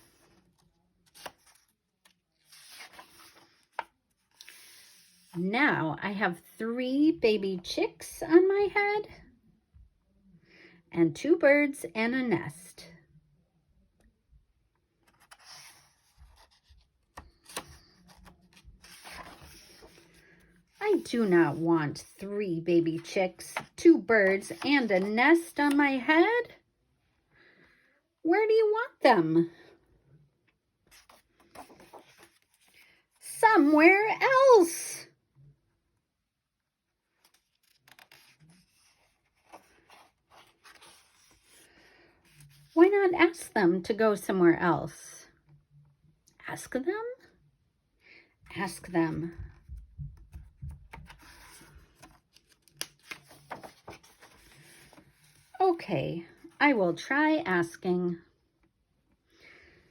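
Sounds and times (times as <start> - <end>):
paper pages rustling: 0.0 - 5.4, 15.0 - 22.2, 22.8 - 25.8, 30.9 - 32.9, 37.1 - 42.8, 49.5 - 55.6.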